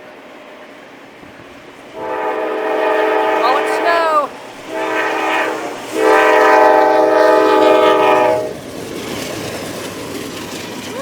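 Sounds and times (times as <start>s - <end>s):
train air horn blasts: 2.0s - 8.6s.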